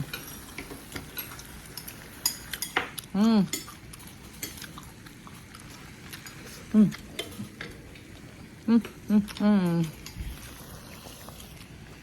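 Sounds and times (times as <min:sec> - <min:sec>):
utensils clinking against dishes: 0:00.0 - 0:04.9.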